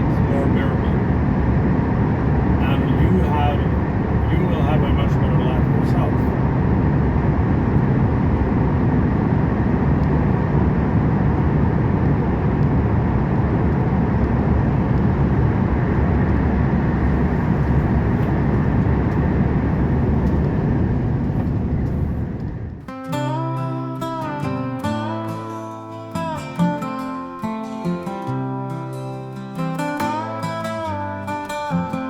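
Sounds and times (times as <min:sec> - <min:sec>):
truck engine and road noise: 0:00.0 - 0:22.9.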